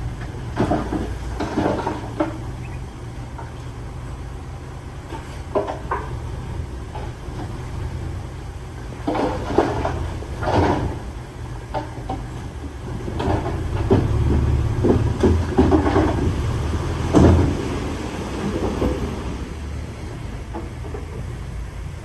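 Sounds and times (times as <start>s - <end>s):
diesel machinery rumbling: 0.0s - 22.0s
rattling and scraping: 0.1s - 3.8s, 8.9s - 19.5s.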